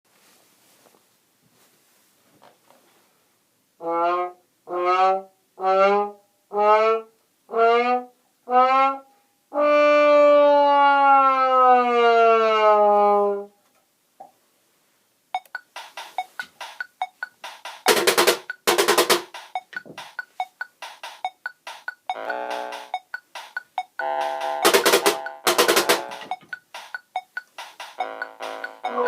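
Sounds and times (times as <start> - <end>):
brass horn notes: 22.2 - 23.0, 24.0 - 26.3, 28.0 - 29.0.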